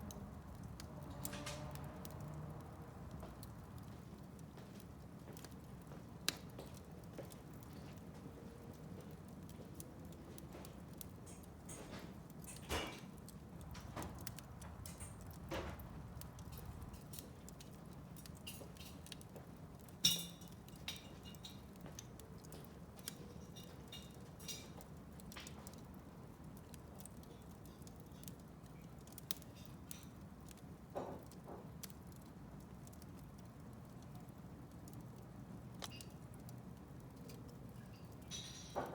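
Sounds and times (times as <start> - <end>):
low rush of burning: 0.0 - 21.1
wood fire crackling and popping: 0.0 - 38.9.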